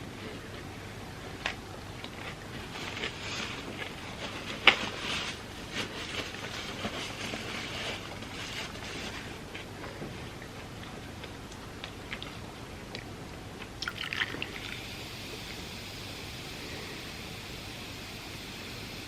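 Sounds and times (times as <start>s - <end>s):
chewing crispy fried food: 0.3s - 14.6s.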